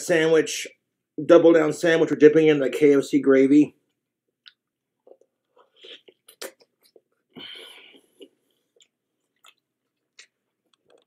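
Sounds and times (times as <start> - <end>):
person chewing: 4.3 - 11.0.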